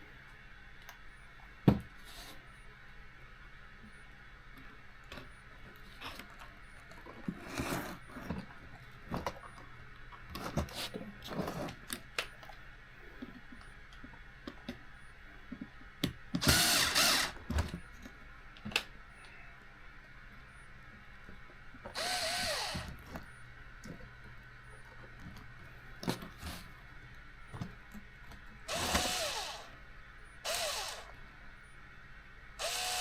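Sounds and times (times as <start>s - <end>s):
electric screwdriver driving screws: 16.4s - 17.4s, 22.0s - 22.9s, 28.7s - 29.7s, 30.5s - 31.1s, 32.6s - 33.0s.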